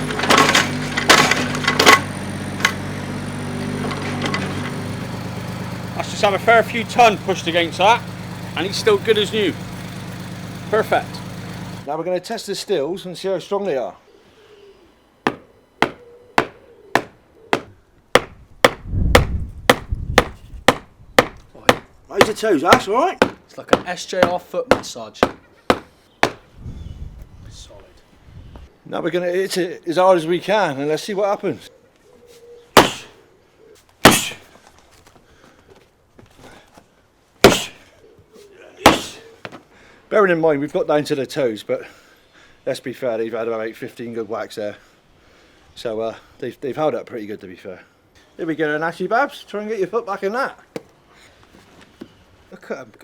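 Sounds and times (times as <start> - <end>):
hammer striking steel toe cap: 15.3 - 26.4, 32.8 - 33.1, 34.0 - 34.4, 37.4 - 37.8, 38.9 - 39.2
blows on steel toe cap: 32.8 - 33.2, 34.0 - 34.5, 37.4 - 37.9.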